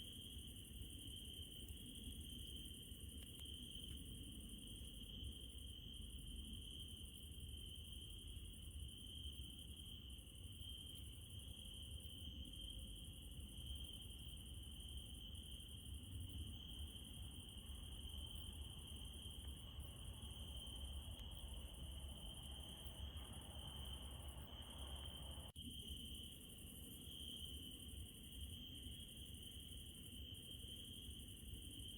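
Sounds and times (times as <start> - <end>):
crickets chirring: 0.0 - 31.9
faint low rumble: 15.9 - 25.6.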